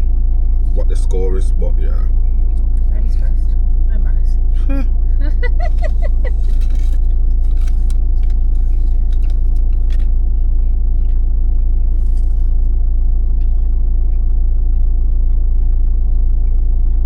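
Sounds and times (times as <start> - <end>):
truck engine idling: 0.0 - 17.0
food packaging crinkling: 6.3 - 10.1.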